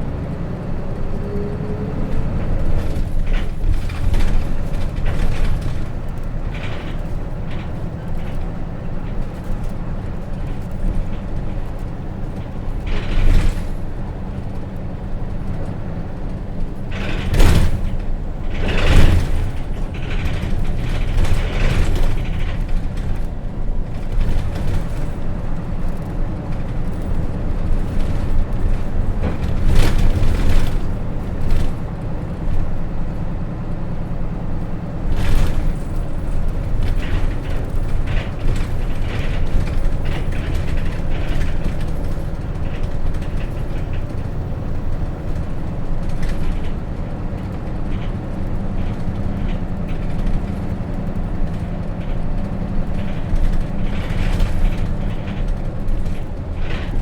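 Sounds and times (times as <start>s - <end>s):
bus engine rumble: 0.0s - 57.0s
body rattles and creaks: 0.4s - 57.0s.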